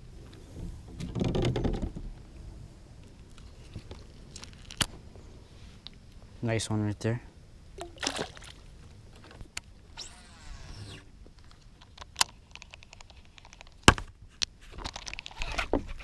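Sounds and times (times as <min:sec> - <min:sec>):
fishing reel whirring: 0:09.9 - 0:11.1
clicks and rustling: 0:11.4 - 0:16.0.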